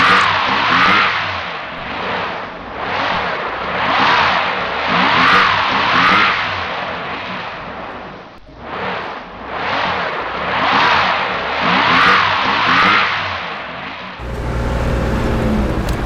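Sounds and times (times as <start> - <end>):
vehicle engines revving hard: 14.2 - 16.0.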